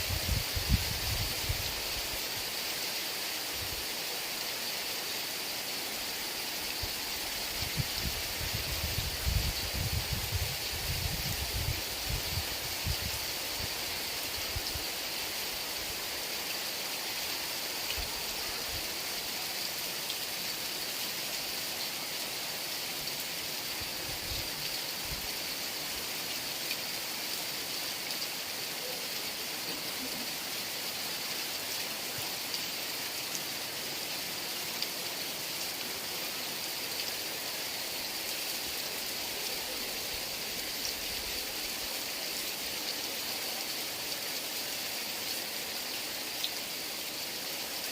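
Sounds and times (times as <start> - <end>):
wind gusts: 0.0 - 2.6, 6.8 - 16.1
heavy rain: 0.0 - 47.9.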